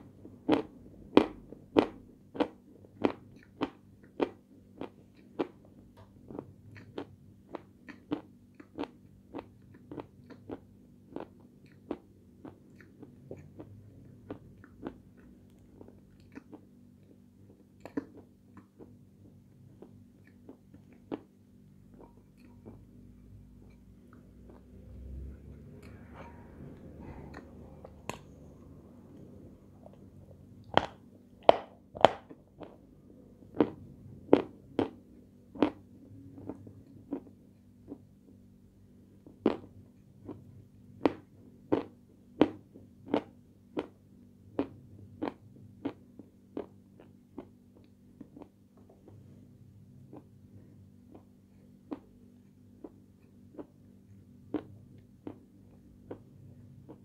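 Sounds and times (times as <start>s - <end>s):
low hum: 18.6s - 41.5s.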